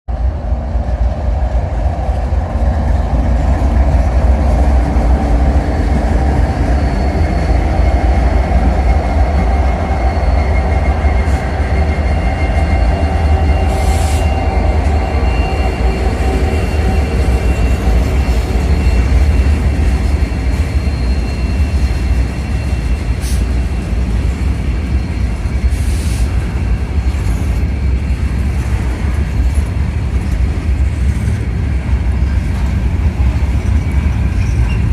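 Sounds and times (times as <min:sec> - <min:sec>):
freight train rumbling past: 0:00.1 - 0:34.9
train clanks: 0:00.2 - 0:34.9
faint wheel squeal: 0:06.2 - 0:23.8, 0:33.7 - 0:34.9.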